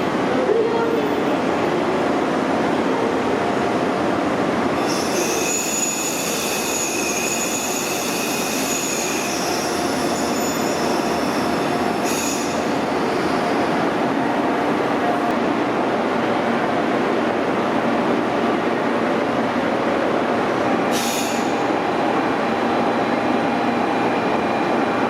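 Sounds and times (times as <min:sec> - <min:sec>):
train wheels squealing on rails: 0:04.8 - 0:13.9, 0:20.9 - 0:21.9.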